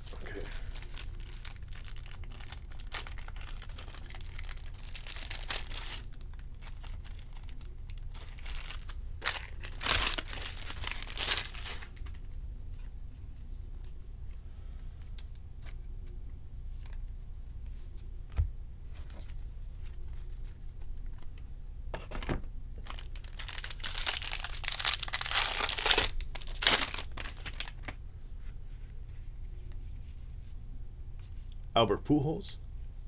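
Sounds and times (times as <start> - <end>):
foil wrapper crinkling and tearing: 0.0 - 12.3, 22.8 - 28.0.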